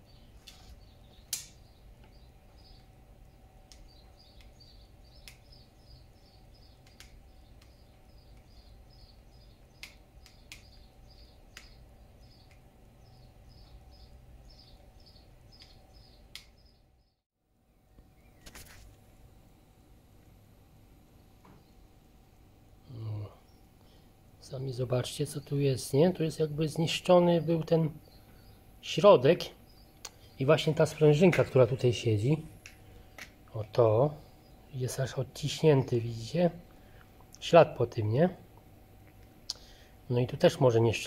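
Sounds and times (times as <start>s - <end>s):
small bird chirping: 0.0s - 17.2s, 18.1s - 18.8s, 22.8s - 36.0s.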